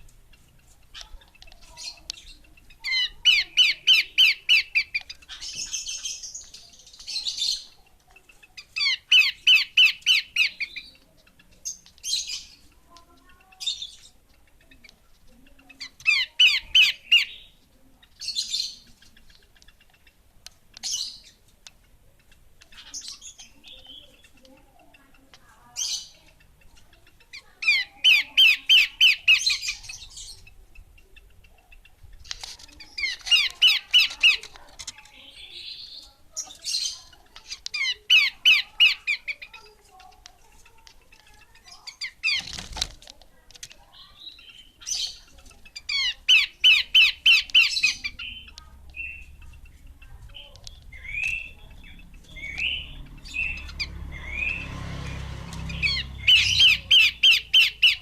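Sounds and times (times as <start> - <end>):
bird calling harsh repeated notes: 8.5 - 12.8, 44.2 - 58.0.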